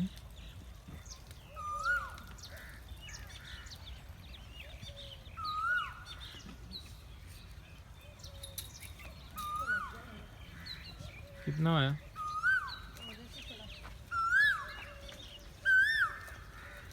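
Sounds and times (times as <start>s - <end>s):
small birds chirping: 0.0s - 16.9s
whistled bird call: 1.5s - 2.3s, 5.4s - 6.2s, 8.3s - 10.3s, 12.1s - 13.4s, 14.1s - 16.3s.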